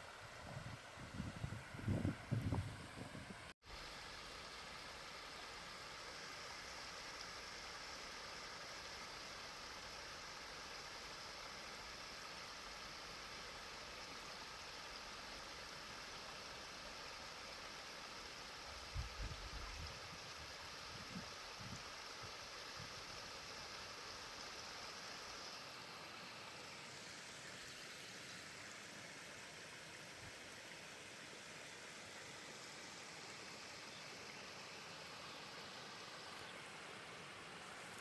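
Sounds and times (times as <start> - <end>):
stream water rushing: 20.0 - 38.0.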